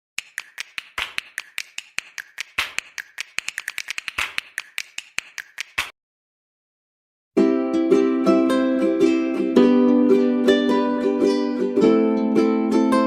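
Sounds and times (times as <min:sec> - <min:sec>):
fast sharp clicks: 0:00.2 - 0:05.9.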